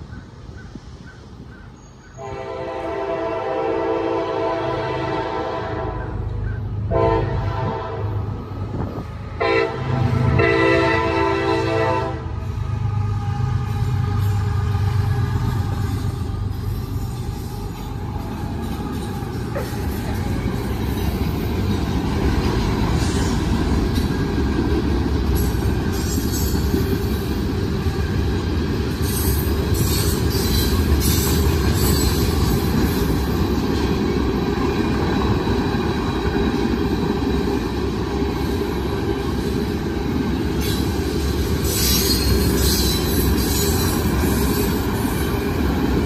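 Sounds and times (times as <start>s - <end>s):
freight train rumbling past: 0.0s - 46.0s
wheel squeal: 41.6s - 44.9s.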